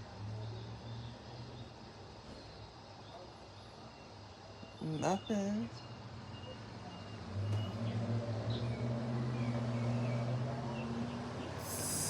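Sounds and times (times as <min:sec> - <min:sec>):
vehicle engine humming: 0:11.0 - 0:12.0.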